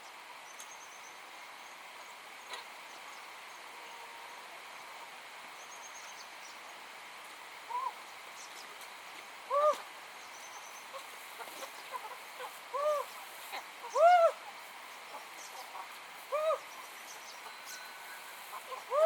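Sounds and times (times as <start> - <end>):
steady outdoor hiss: 0.0 - 19.0
bird calls with arching notes: 9.5 - 19.0
faint high chirping: 16.3 - 19.0.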